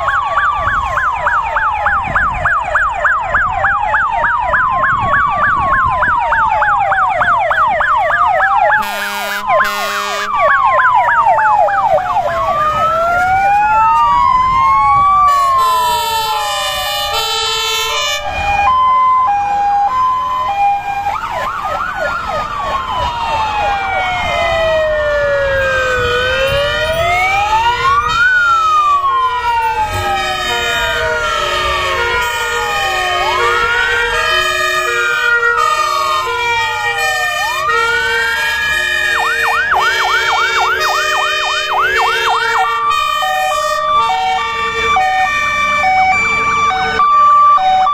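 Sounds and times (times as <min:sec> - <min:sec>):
fire engine sirens: 0:00.0 - 0:47.9
truck engines running: 0:00.0 - 0:47.9
short horn blasts: 0:08.8 - 0:10.3, 0:30.0 - 0:44.8.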